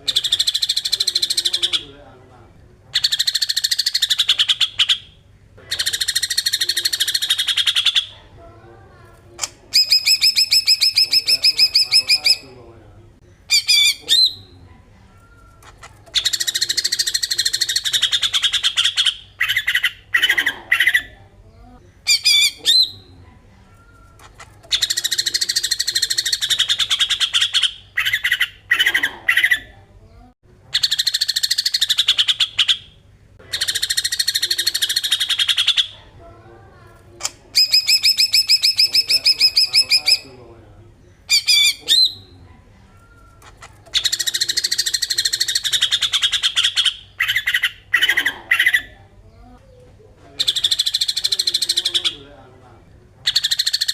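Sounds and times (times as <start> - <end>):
bird whistled phrases: 9.7 - 12.4, 13.5 - 14.6, 22.1 - 23.1, 37.6 - 40.4, 41.3 - 42.4, 43.9 - 49.0.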